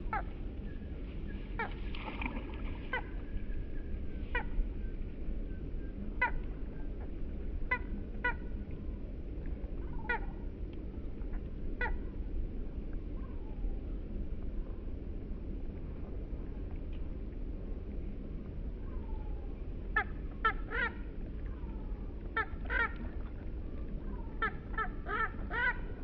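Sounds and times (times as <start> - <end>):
steady low rumble: 0.0 - 26.0
bird harsh calls: 22.4 - 23.0, 24.1 - 26.0.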